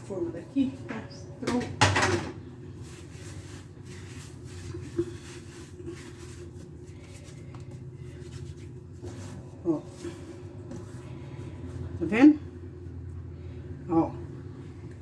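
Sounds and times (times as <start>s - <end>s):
steady low hum: 0.0s - 15.0s
hands rubbing and shaping dough: 2.5s - 13.6s.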